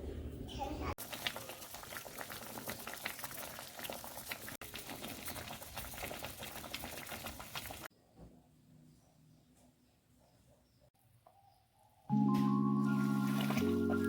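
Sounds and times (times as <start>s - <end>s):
food sizzling in a pan: 1.0s - 7.9s.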